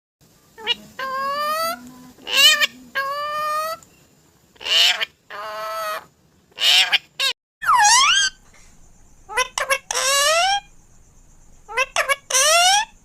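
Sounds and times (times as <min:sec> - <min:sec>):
parrot squawking and whistling: 0:06.6 - 0:08.4, 0:09.3 - 0:10.7, 0:11.7 - 0:13.0.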